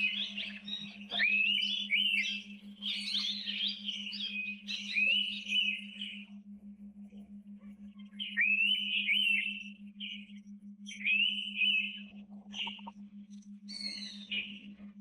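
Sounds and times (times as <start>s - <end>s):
bird whistling phrases: 0.0s - 6.2s, 8.2s - 10.3s, 10.9s - 12.9s
bird chirps: 0.0s - 6.4s, 7.7s - 15.0s
low pulsing hum: 0.0s - 15.0s.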